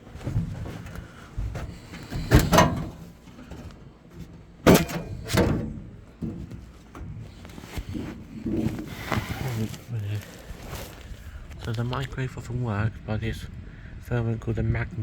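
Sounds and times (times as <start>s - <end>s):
metal cover knocking and scraping: 1.5s - 7.2s.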